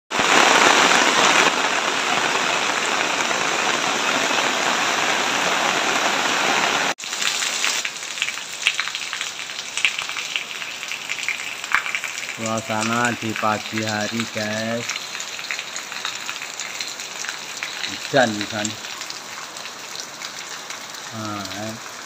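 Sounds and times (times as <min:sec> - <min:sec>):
heavy rain on a wet road: 0:00.1 - 0:22.0
sharp rain drops: 0:00.1 - 0:22.0.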